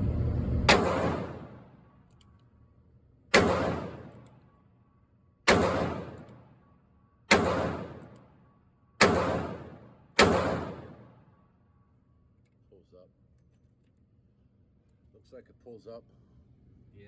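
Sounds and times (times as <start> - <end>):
revolver shots echoing: 0.7 - 1.7, 3.3 - 4.2, 5.5 - 6.4, 7.3 - 8.2, 9.0 - 11.1.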